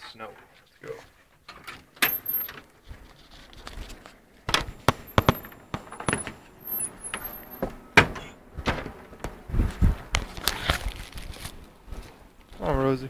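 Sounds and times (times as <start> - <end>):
door squeaking: 2.0 - 2.6, 4.6 - 8.9.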